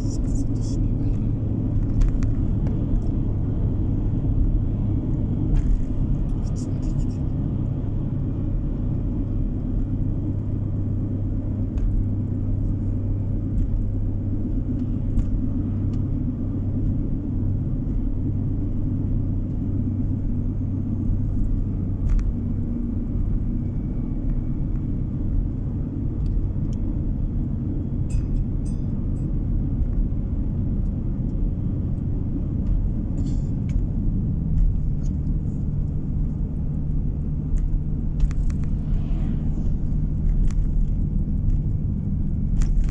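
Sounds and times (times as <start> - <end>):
car engine and road rumble: 0.0 - 42.9
steady hum: 34.6 - 42.9.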